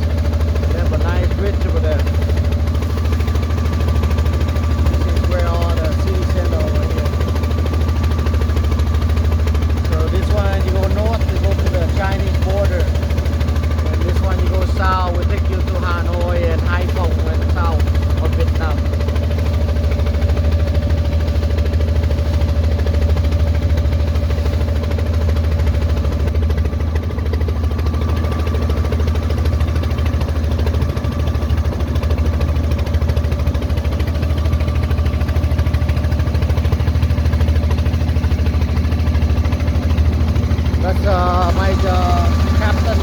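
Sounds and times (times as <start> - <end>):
boat engine humming: 0.0 - 43.0.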